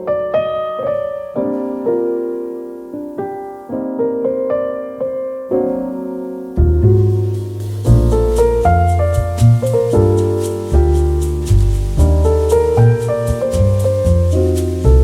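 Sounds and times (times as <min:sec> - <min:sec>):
piano music: 0:00.0 - 0:15.0
deep bass line: 0:06.6 - 0:15.0.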